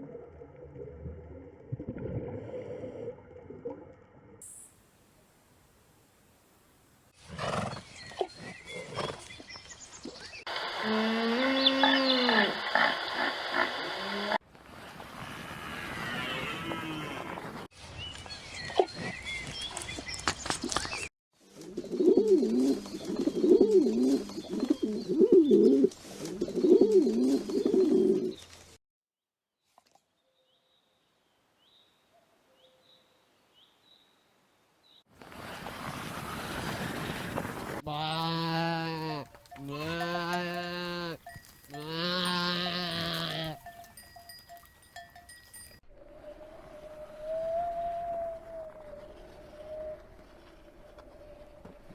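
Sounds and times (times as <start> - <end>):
bird cooing: 21.8 - 28.3
sheep bleating: 37.8 - 43.7
faint bell tinkles: 39.5 - 45.8.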